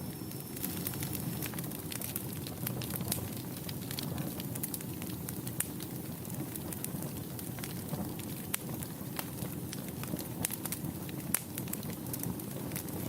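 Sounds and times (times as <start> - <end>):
fire flames rumbling: 0.0 - 13.0
wood crackling and popping: 0.0 - 13.0.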